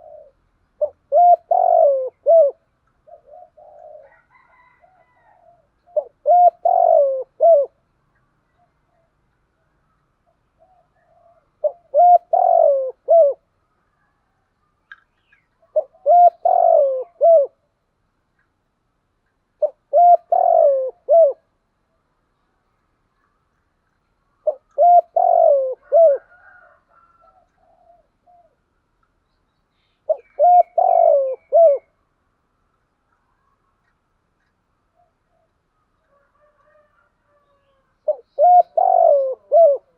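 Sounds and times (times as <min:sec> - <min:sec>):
dove cooing: 0:00.0 - 0:07.8, 0:10.3 - 0:13.5, 0:15.6 - 0:17.6, 0:19.6 - 0:21.5, 0:24.4 - 0:28.6, 0:30.0 - 0:32.0, 0:36.1 - 0:39.9
faint bird chirps: 0:26.4 - 0:32.1.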